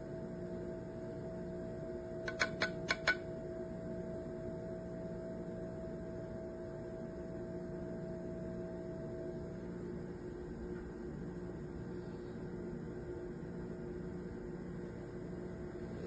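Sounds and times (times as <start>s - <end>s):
steady multi-tone hum: 0.0s - 16.0s
sharp clicks: 2.3s - 3.2s.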